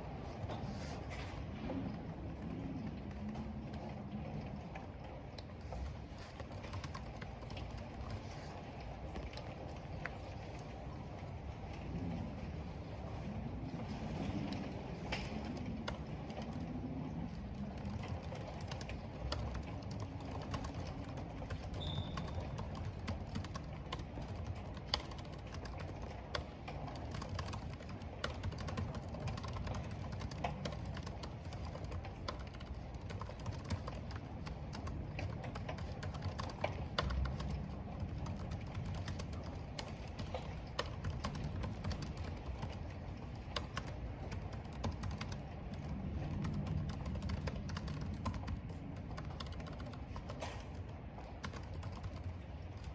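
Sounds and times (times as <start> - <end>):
rain: 0.0 - 52.9
wind: 0.0 - 52.9
computer keyboard typing: 5.6 - 8.5, 14.2 - 52.9.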